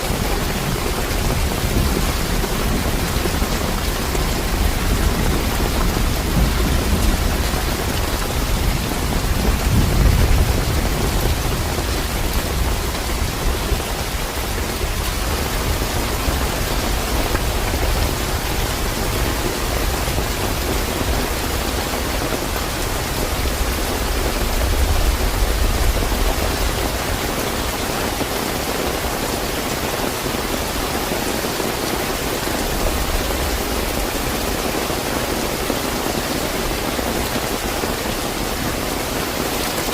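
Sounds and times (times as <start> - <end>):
low rolling thunder: 0.0 - 28.1
heavy rain falling: 0.0 - 39.9.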